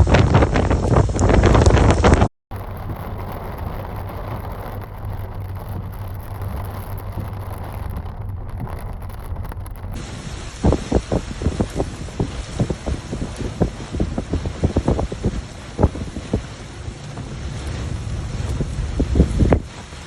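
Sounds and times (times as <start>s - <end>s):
steady rushing noise: 0.0s - 20.0s
wind blowing on microphone: 0.0s - 20.0s
low hum: 0.6s - 20.0s.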